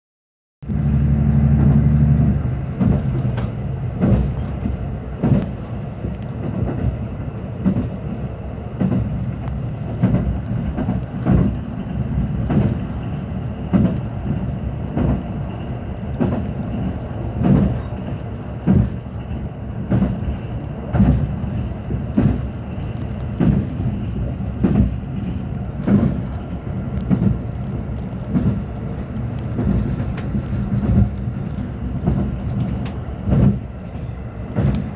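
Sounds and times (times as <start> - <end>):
low engine drone: 0.6 - 6.4
train rumble: 0.6 - 34.9
wheels clacking over rail joints: 1.2 - 7.0.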